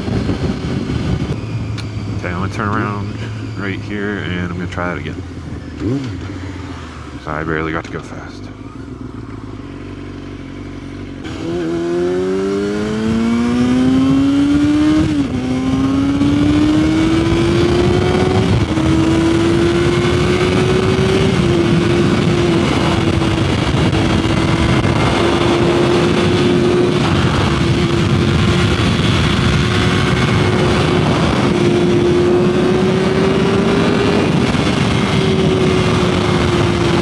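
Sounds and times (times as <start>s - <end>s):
wind rush: 0.0s - 2.4s, 11.4s - 37.0s
motorcycle engine accelerating: 0.0s - 37.0s.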